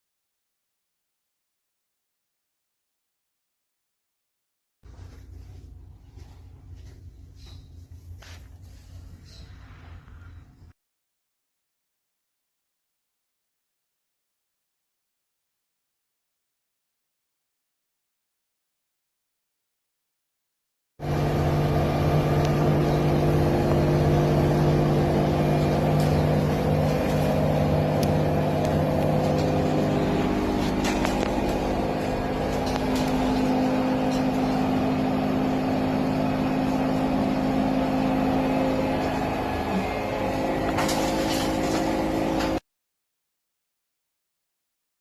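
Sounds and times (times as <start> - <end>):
washing machine spinning: 21.0 - 42.6.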